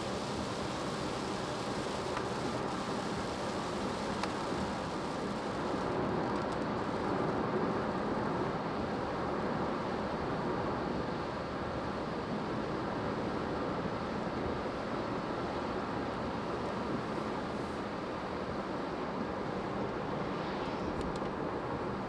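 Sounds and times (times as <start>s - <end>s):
tyres hissing on wet road: 0.0s - 5.9s.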